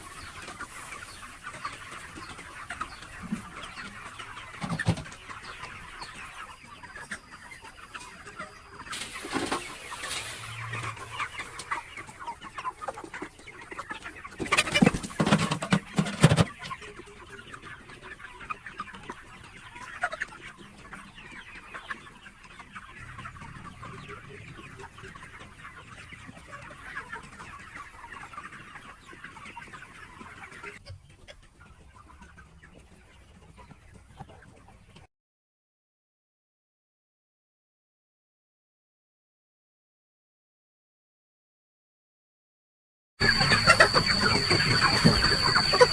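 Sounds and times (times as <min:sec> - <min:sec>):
chickens clucking: 0:00.0 - 0:35.1, 0:43.2 - 0:45.9
rustling noise: 0:08.9 - 0:12.3.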